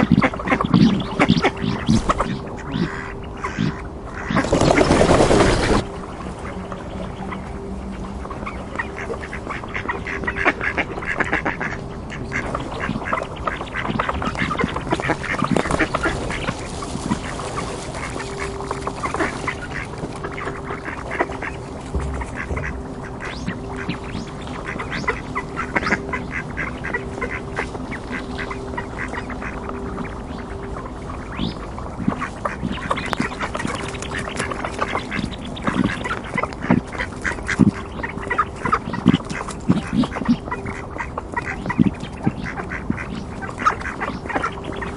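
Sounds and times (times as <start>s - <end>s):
ducks quacking: 0.0s - 44.9s
faint steady hum: 0.0s - 44.9s.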